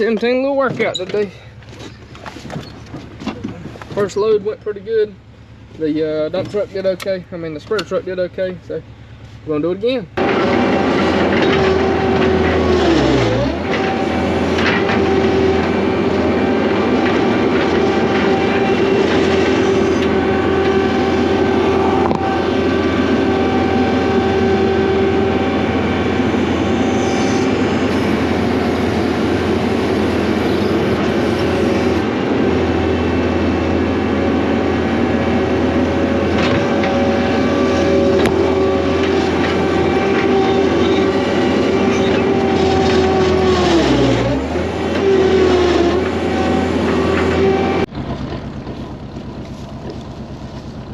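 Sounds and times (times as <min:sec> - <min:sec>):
diesel engine running under load: 0:00.0 - 0:50.9.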